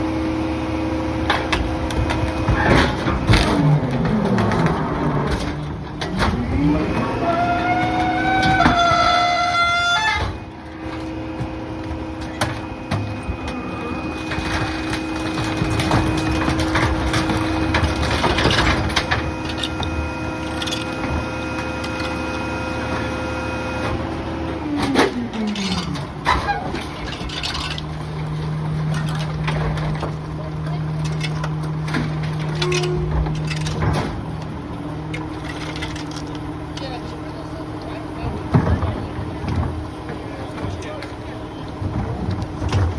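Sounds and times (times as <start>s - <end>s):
garbage truck engine and hydraulics: 0.0s - 42.9s
debris knocking and clattering: 10.2s - 23.1s, 24.8s - 37.4s, 41.8s - 42.9s.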